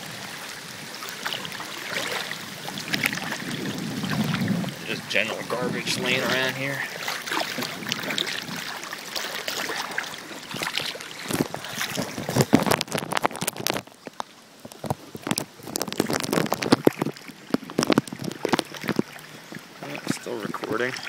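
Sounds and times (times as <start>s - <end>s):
water sloshing and splashing: 0.0s - 21.0s
sharp crackles: 10.7s - 19.2s.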